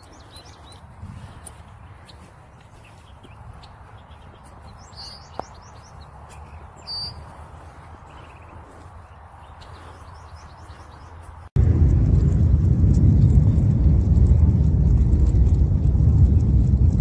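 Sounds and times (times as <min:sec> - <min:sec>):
birds chirping: 0:00.0 - 0:11.5
low background rumble: 0:11.5 - 0:17.0.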